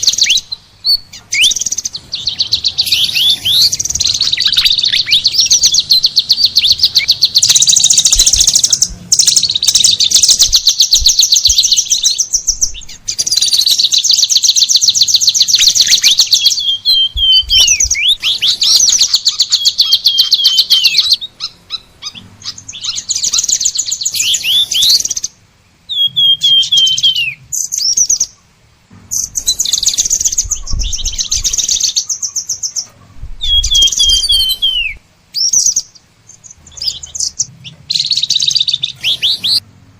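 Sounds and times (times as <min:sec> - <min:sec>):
songbird trilled chirps: 0:00.0 - 0:39.6.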